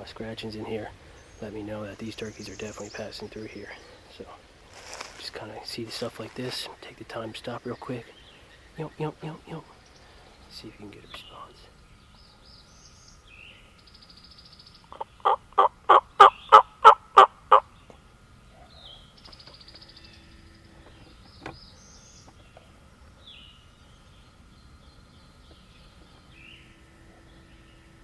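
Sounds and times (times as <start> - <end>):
songbirds chirping: 0.0 - 28.0
turkey call hen yelps: 14.9 - 17.7.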